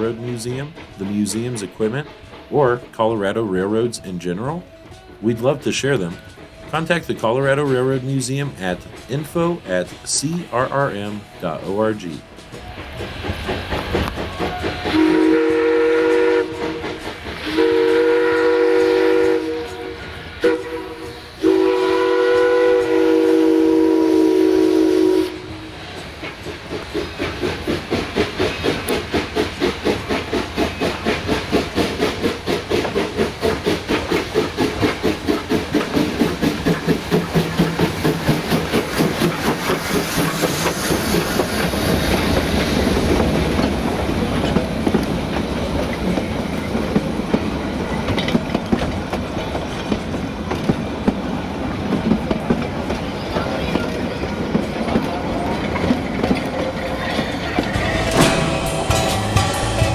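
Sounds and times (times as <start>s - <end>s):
steam locomotive exhaust chuffs: 0.0s - 59.9s
steam whistle: 14.2s - 25.8s.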